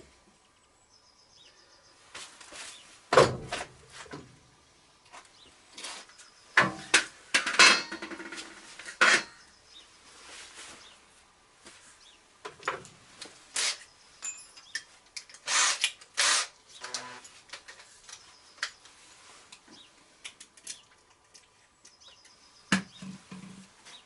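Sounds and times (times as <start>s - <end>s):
metal clanking and knocking: 6.6s - 9.4s.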